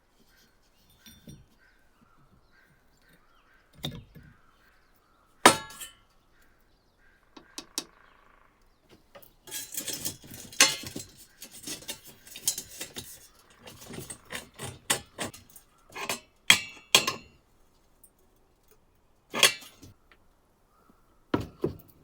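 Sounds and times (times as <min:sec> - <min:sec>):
metal clattering and scraping: 0:05.5 - 0:06.0, 0:09.1 - 0:17.3, 0:19.3 - 0:20.0
knock on workbench: 0:21.4 - 0:21.8.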